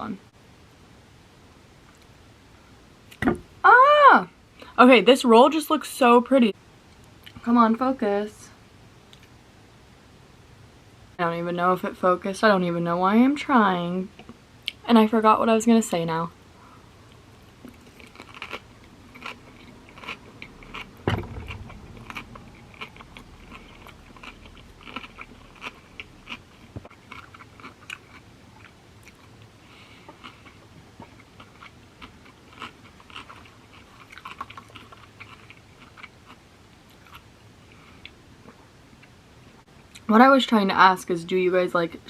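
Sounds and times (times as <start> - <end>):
wet chewing clicks and smacks: 19.2 - 29.5
loud thump: 21.0 - 23.9.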